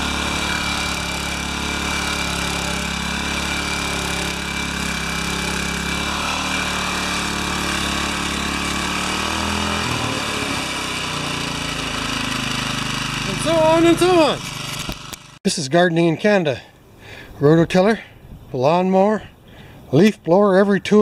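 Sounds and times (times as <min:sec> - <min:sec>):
small gasoline engine running: 0:00.0 - 0:15.4.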